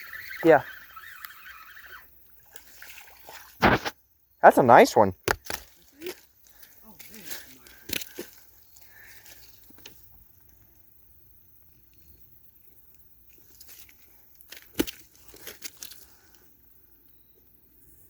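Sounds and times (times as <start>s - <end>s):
rustling and handling noises: 13.3s - 16.5s.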